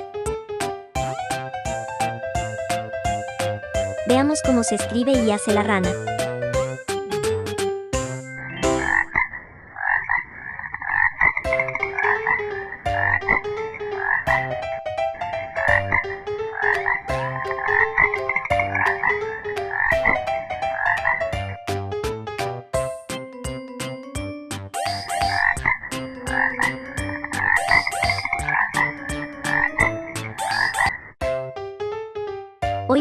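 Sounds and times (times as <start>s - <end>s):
frog croaking: 8.5s - 14.5s, 15.6s - 20.0s, 26.3s - 31.0s.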